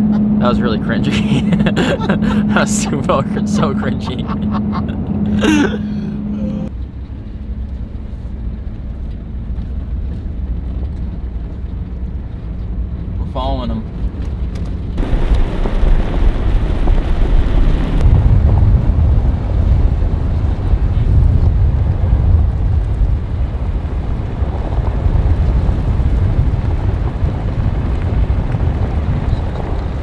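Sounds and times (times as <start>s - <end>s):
truck rumbling: 0.0s - 13.2s, 13.9s - 21.9s
wind buffeting microphone: 13.9s - 30.0s.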